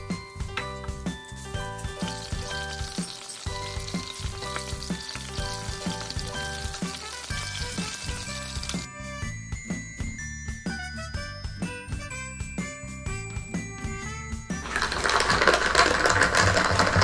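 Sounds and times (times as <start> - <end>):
background music with beat: 0.0 - 14.7
meat sizzling in oil: 1.0 - 8.9.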